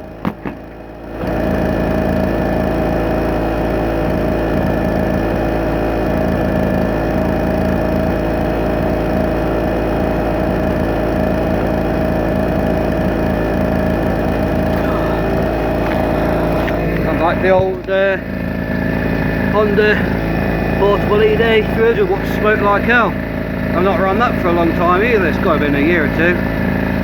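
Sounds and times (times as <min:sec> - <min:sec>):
generator engine running: 0:00.0 - 0:27.0.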